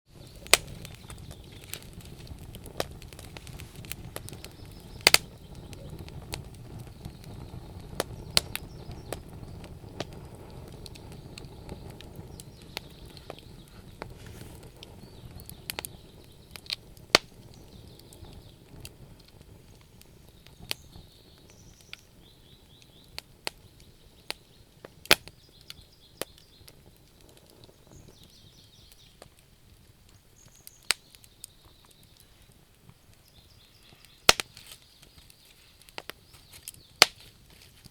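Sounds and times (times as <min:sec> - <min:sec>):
low rumble of burning: 0:00.1 - 0:37.9
wood fire crackling: 0:00.1 - 0:37.9
sharp pops of wood: 0:00.4 - 0:05.8, 0:16.6 - 0:17.3, 0:25.0 - 0:25.4, 0:34.0 - 0:37.9.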